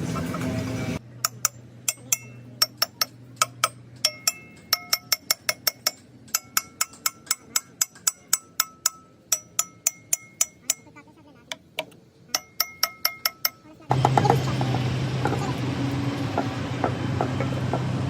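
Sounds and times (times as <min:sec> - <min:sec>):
metal tapping on metal: 0:01.2 - 0:15.4.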